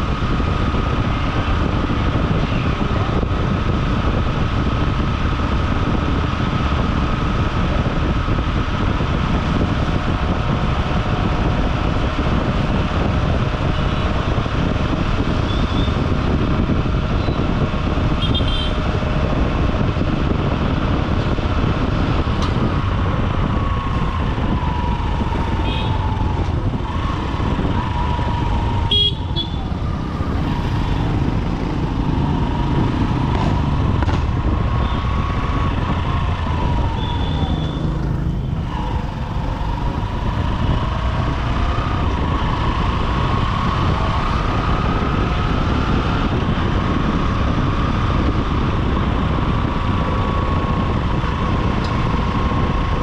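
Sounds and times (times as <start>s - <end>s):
motorcycle engine: 0.0s - 53.0s
road and wind noise: 0.0s - 53.0s
vehicle horn toots: 18.2s - 18.8s, 28.9s - 29.6s.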